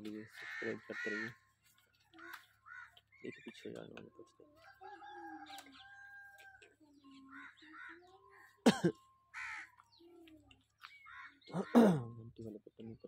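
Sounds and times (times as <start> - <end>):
crow-like bird calls: 0.1 - 3.8, 4.8 - 8.7, 9.3 - 10.2, 10.8 - 12.1.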